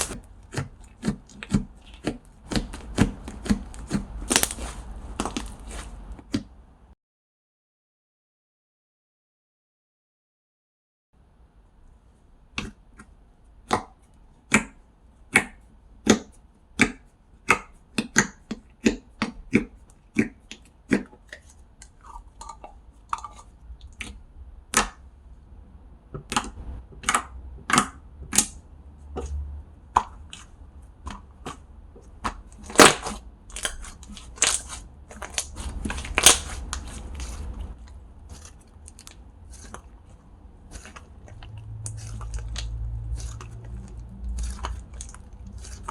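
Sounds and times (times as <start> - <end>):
slime popping and clicking: 1.4 - 6.4, 32.2 - 37.4.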